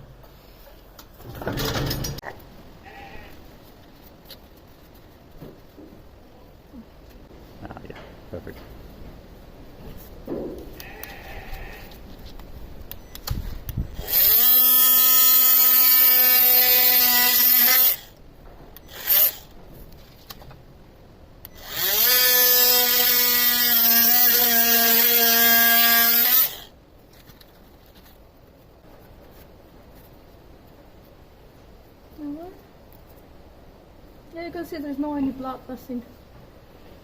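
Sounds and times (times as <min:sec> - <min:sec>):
power tool cutting horn: 0:14.0 - 0:18.1, 0:18.8 - 0:19.5, 0:21.5 - 0:26.7.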